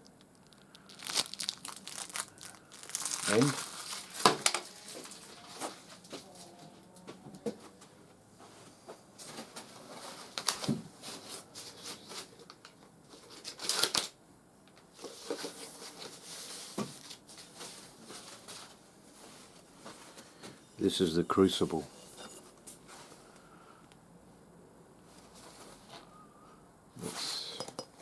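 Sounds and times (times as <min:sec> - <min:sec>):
packaging rustling and crinkling: 0:00.1 - 0:06.0, 0:09.2 - 0:14.2, 0:14.9 - 0:20.2.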